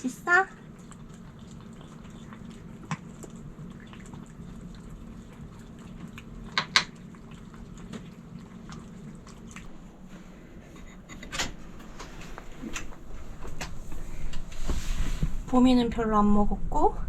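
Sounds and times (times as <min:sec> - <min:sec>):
steady low hum: 0:00.0 - 0:17.0
cats chewing and licking: 0:00.2 - 0:14.5.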